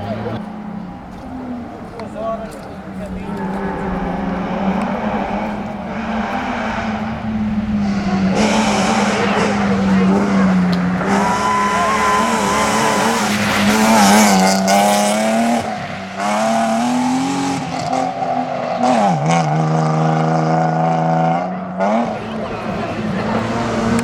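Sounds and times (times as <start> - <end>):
rally car engine at high revs: 0.0 - 24.0.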